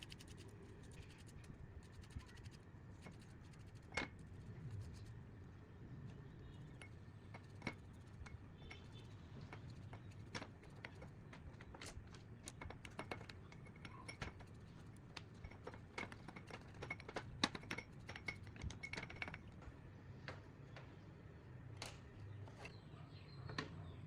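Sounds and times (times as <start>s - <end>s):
faint low hum: 0.0s - 24.0s
hand tools clinking: 6.7s - 19.6s.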